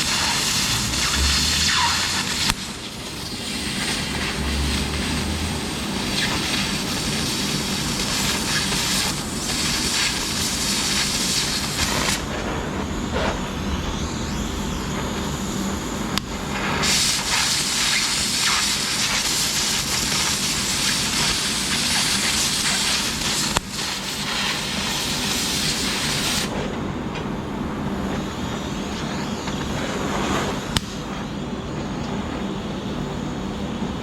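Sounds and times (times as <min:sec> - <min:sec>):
welding arc crackling: 0:00.0 - 0:32.0
dull mechanical noise: 0:00.0 - 0:34.0
low hum: 0:11.5 - 0:16.9.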